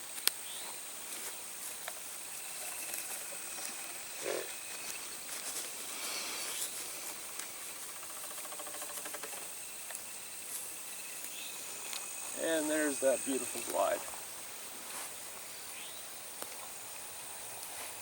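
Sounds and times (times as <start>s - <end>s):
rapid insect chirring: 0.0s - 17.8s
high-pitched insect drone: 1.6s - 14.6s.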